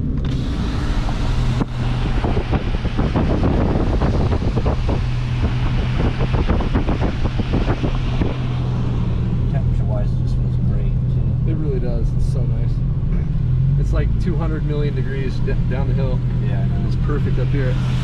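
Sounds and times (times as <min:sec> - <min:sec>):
car engine hum: 0:00.0 - 0:18.0
tyres on road: 0:00.0 - 0:18.0
wind buffeting microphone: 0:00.6 - 0:09.5.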